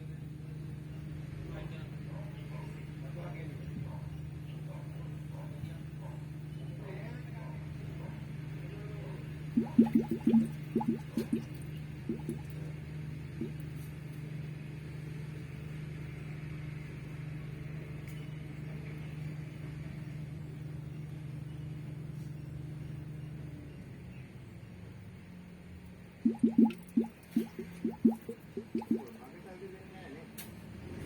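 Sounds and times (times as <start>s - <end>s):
coolant bubbling and glugging: 9.5s - 12.7s, 13.3s - 13.6s, 26.2s - 29.3s.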